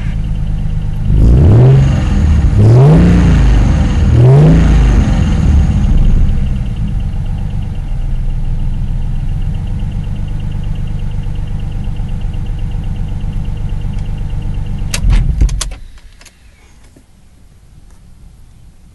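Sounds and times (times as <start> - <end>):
car engine fast idle: 0.0 - 1.2, 5.1 - 15.0
sharp clicks and clunk: 14.9 - 17.1.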